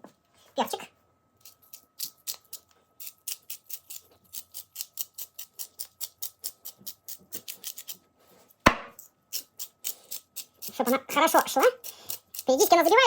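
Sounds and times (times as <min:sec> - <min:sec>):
grinder knocking on table: 0:08.7 - 0:09.0.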